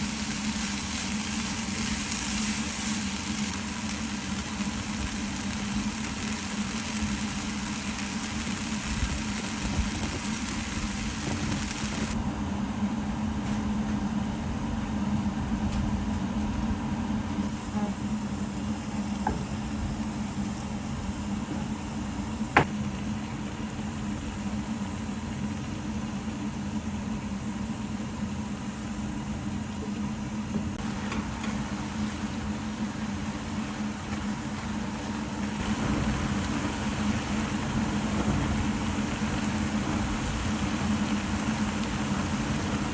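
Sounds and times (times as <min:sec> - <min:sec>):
hiss: 0:00.0 - 0:12.2, 0:30.6 - 0:42.9
mechanical hum: 0:00.0 - 0:42.9.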